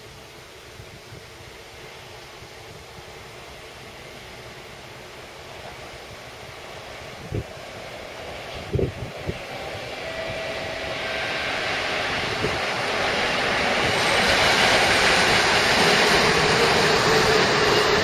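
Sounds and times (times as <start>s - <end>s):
train rail and wheel noise: 0.0s - 18.0s.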